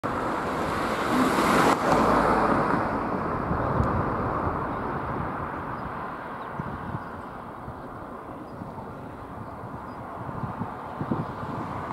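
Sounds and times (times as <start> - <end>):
vehicle passing by: 0.0 - 7.0.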